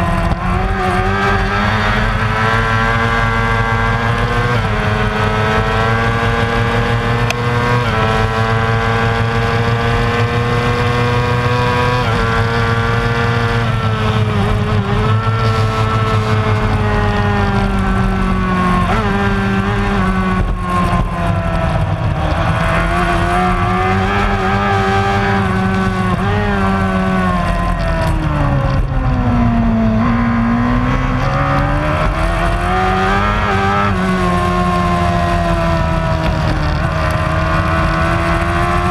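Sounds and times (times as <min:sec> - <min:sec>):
racing motorcycle engine at high revs: 0:00.0 - 0:38.9.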